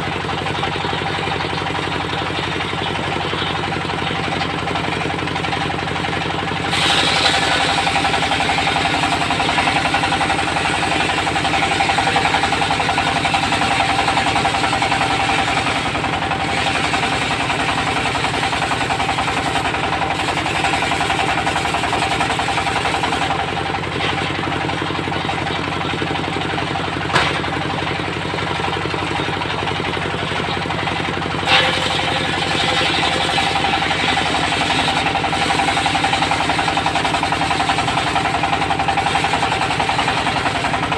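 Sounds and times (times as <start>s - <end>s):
diesel engine knocking: 0.0s - 40.9s
circular saw blade whine: 2.7s - 25.7s, 30.3s - 40.9s
sharp knocks: 27.1s - 27.6s.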